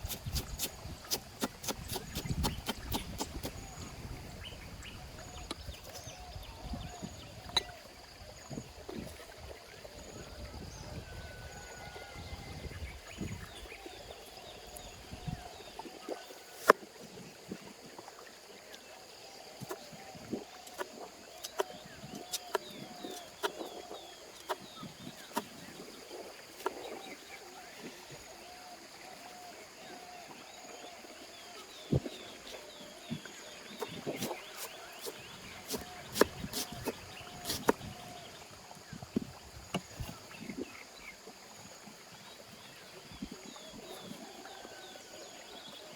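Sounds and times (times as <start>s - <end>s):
birds calling: 31.6s - 38.4s.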